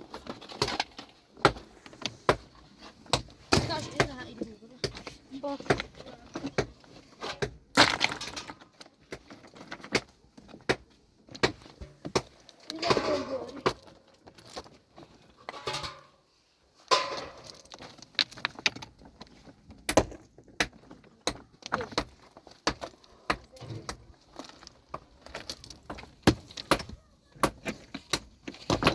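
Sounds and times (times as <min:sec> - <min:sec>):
knocks and clatter of handwork: 0:16.9 - 0:28.9.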